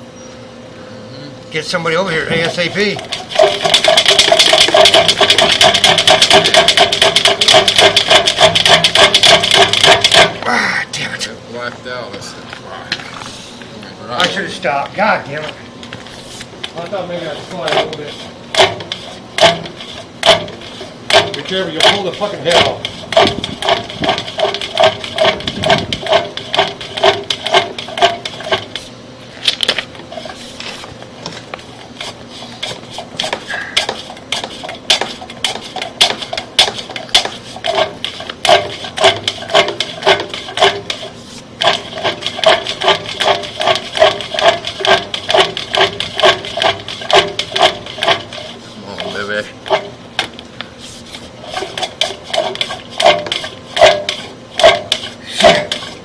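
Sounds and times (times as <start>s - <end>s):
cable reel metallic clicking: 2.4s - 10.4s, 16.6s - 30.3s, 33.2s - 50.4s, 51.4s - 56.0s.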